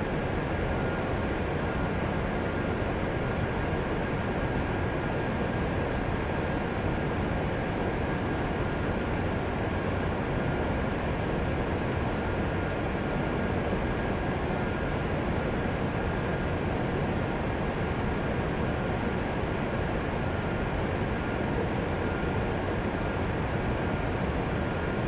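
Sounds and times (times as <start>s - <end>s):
faint steady whine: 0.0s - 25.0s
train equipment hum and hiss: 0.0s - 25.0s.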